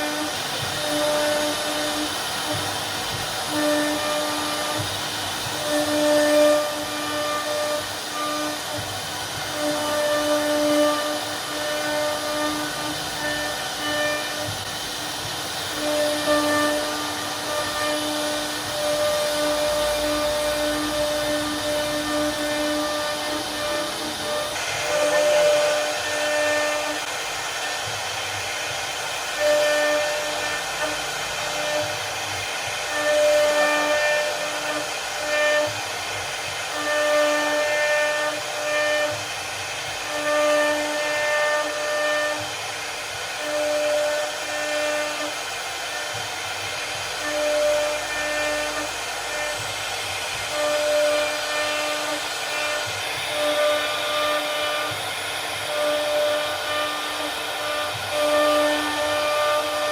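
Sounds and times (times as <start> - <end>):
cnc router carving wood: 0.0 - 59.9.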